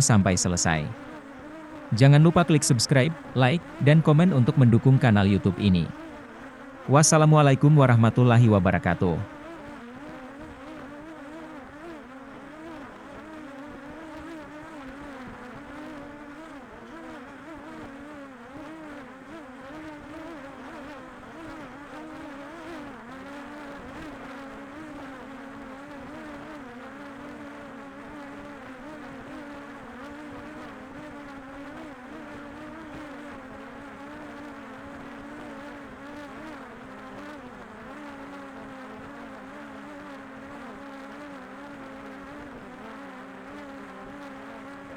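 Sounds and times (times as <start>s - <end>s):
drone propellers buzzing: 0.0s - 1.2s, 1.9s - 6.1s.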